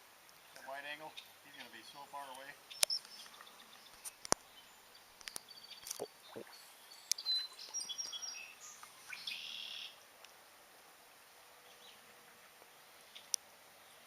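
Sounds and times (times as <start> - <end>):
songbirds chirping: 0.0 - 14.0
faint sharp clicks: 2.2 - 4.5, 5.2 - 6.1, 7.0 - 8.2, 13.1 - 13.5.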